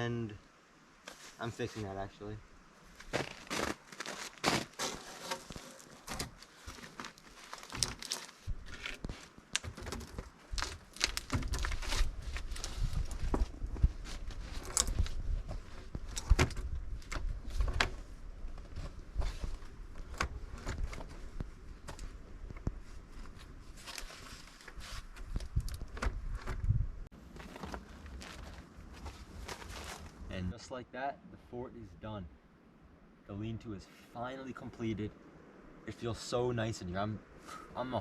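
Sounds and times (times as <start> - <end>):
branches and sticks knocking: 3.0 - 13.5
footsteps: 27.2 - 30.2.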